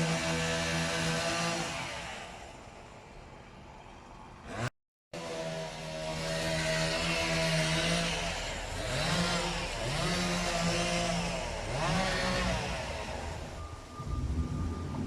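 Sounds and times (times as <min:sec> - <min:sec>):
chainsaw cutting: 0:00.0 - 0:02.6, 0:04.5 - 0:13.7.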